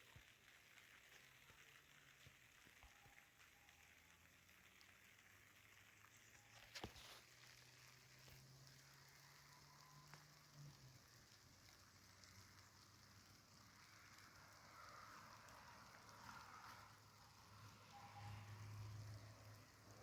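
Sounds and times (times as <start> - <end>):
faint hiss of rain: 0.0 - 20.0.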